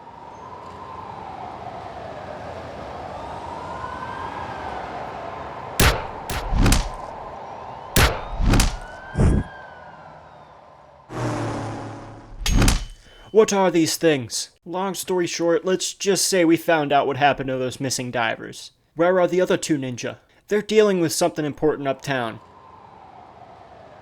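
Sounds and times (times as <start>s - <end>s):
emergency siren wailing: 0.0s - 12.4s, 22.4s - 24.0s
city noise: 0.0s - 24.0s
loud bangs: 5.8s - 7.3s, 8.0s - 9.5s, 11.1s - 13.4s.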